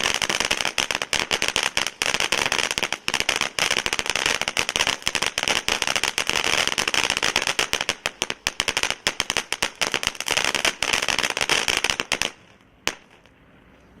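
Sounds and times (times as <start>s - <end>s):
firework hiss: 0.0s - 13.3s
firework crack: 0.0s - 14.0s
firework fountain crackling: 0.0s - 14.0s.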